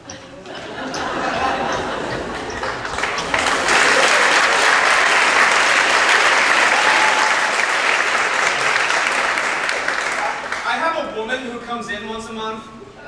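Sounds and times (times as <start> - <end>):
audience applauding: 1.2 - 10.8.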